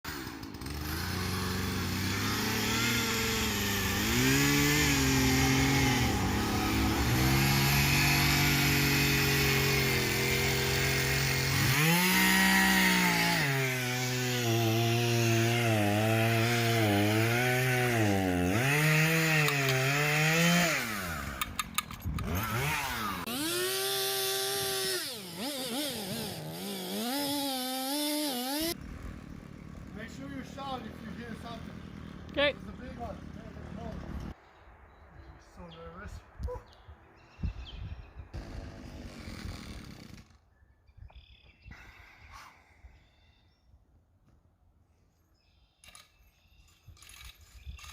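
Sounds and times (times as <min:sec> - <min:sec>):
chainsaw cutting into tree: 0:00.1 - 0:34.4, 0:38.3 - 0:40.5.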